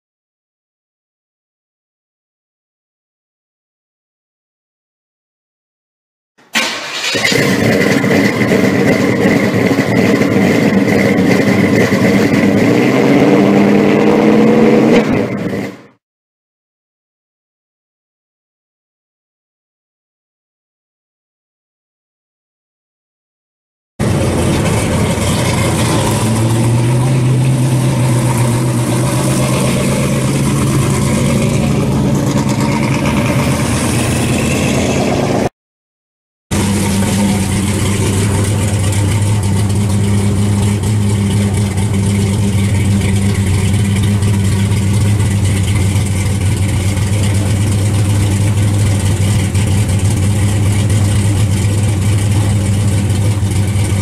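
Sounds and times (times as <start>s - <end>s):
loud car engine running: 6.6s - 16.0s, 24.0s - 35.5s, 36.5s - 54.0s.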